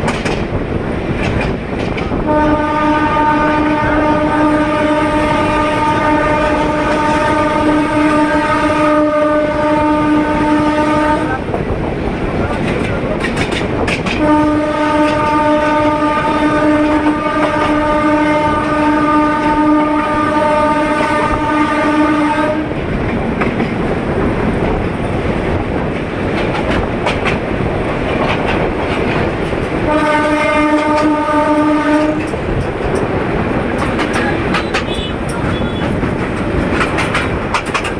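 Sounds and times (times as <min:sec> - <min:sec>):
moving train rumble and clatter: 0:00.0 - 0:37.9
locomotive horn blasts: 0:02.2 - 0:11.5, 0:14.2 - 0:22.8, 0:29.9 - 0:32.4, 0:34.1 - 0:36.0.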